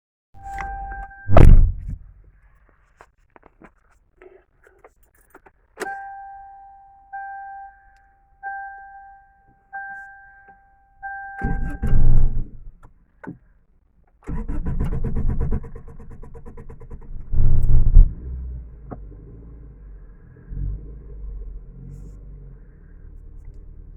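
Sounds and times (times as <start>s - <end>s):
car key clicks: 0.4s - 2.0s, 5.2s - 9.1s, 9.8s - 13.4s
dashboard warning chime beeps: 0.4s - 2.0s, 5.8s - 12.6s
car engine idling: 0.4s - 20.5s
starter motor cranking: 14.1s - 18.1s.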